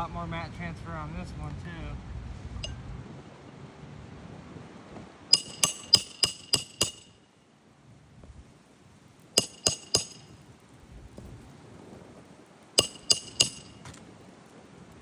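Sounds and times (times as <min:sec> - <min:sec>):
hammer striking metal: 0:05.3 - 0:07.2, 0:09.4 - 0:10.4, 0:12.8 - 0:14.0.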